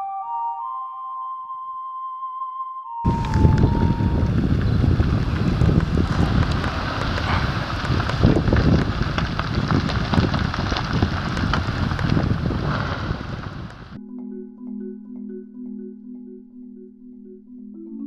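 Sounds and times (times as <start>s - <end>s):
sharp crackles: 3.1s - 14.0s
volcano eruption rumble: 3.1s - 14.0s
wind buffeting microphone: 3.1s - 14.0s.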